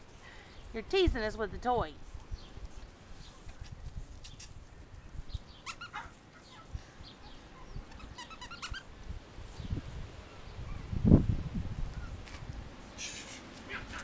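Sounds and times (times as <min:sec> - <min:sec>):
puppies whining: 0:05.6 - 0:08.9, 0:10.2 - 0:10.9
puppies yipping: 0:05.6 - 0:08.9.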